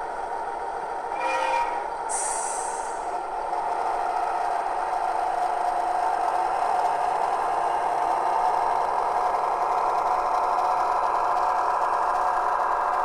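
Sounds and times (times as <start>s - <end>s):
thin diesel engine drone: 1.1s - 3.1s.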